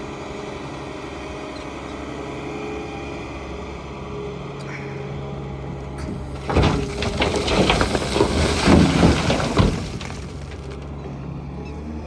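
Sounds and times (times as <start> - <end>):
diesel engine running: 3.0 - 12.0
mud and stones crashing into truck: 5.9 - 11.2.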